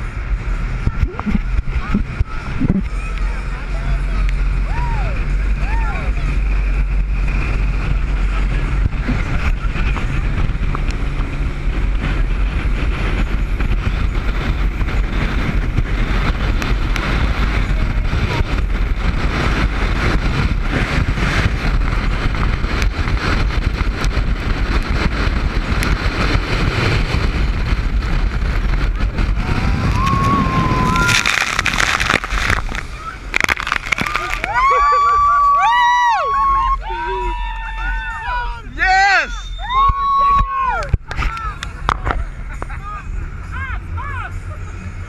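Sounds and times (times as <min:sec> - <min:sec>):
water rushing: 0:00.0 - 0:12.0, 0:24.6 - 0:35.6
wind buffeting microphone: 0:00.0 - 0:38.8
speedboat engine: 0:00.0 - 0:45.0.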